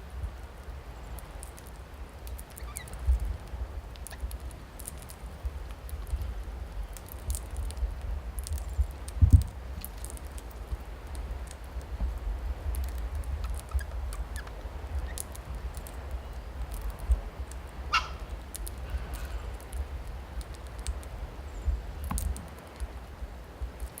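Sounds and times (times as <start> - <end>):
birds pecking at feed: 1.1 - 21.1
faint bird chirp: 2.5 - 3.0.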